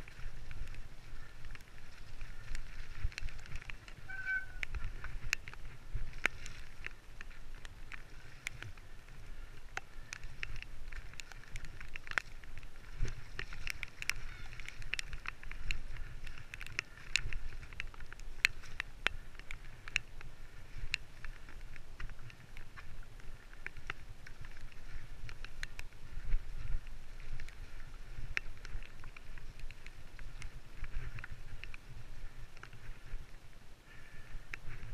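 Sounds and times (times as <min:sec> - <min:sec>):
bike clicks and rattles: 0:00.0 - 0:34.9
brief squeak: 0:04.1 - 0:04.6.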